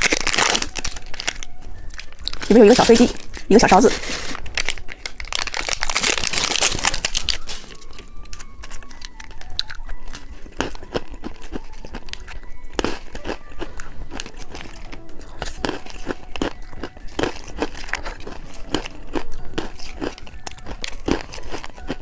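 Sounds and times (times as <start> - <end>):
plastic wrapper clicks and crackles: 0.0 - 13.4
plastic packaging crinkling and tearing: 0.0 - 22.0.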